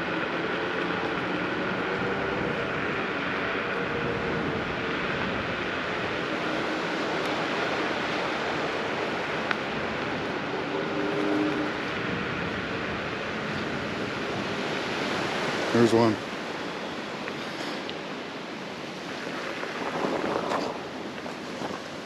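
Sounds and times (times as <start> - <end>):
wind and tyres rushing: 0.0 - 22.0.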